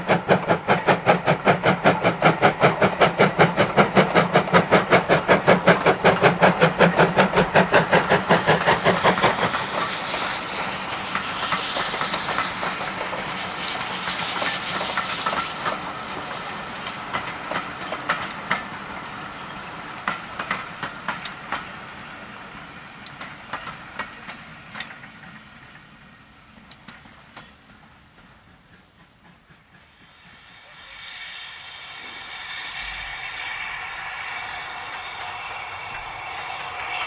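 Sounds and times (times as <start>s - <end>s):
train coaches rumbling past: 0.0s - 37.0s
wheels clicking over rail joints: 23.0s - 25.8s, 26.6s - 30.4s.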